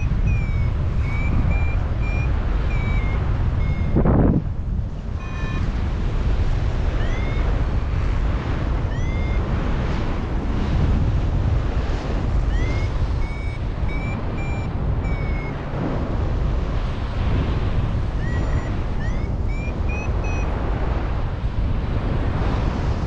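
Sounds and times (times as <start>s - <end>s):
variometer beeping: 0.0s - 4.4s, 5.0s - 9.9s, 12.2s - 15.8s, 18.2s - 20.7s
wind rushing over microphone: 0.0s - 23.0s.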